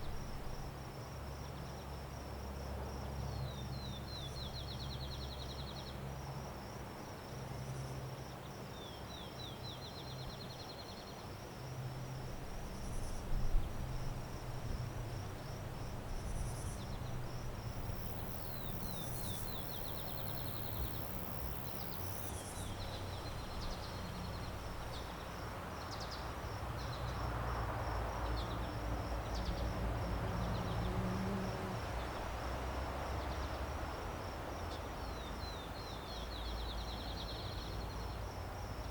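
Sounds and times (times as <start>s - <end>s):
insects chirring: 0.0s - 1.8s, 12.6s - 27.2s
rapid insect trills: 11.7s - 32.3s.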